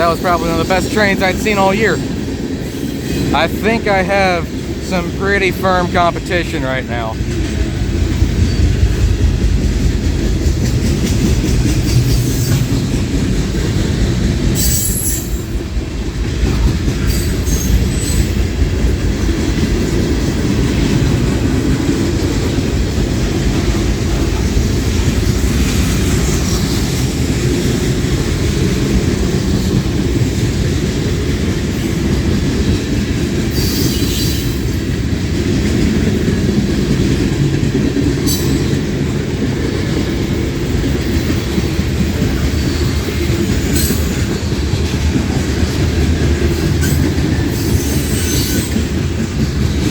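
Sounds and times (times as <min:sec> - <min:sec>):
steel wheels rumbling on rail: 0:00.0 - 0:49.9
high wheel squeals: 0:14.6 - 0:15.6, 0:17.0 - 0:18.4, 0:33.5 - 0:34.7, 0:46.8 - 0:48.9.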